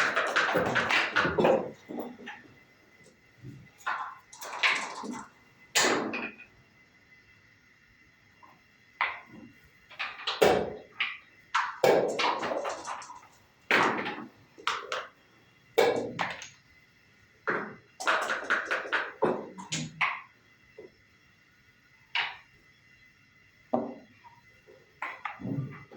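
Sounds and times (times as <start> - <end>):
checkers clacking on wooden board: 0.0 - 2.4, 3.8 - 6.2, 9.9 - 15.1, 17.5 - 20.2.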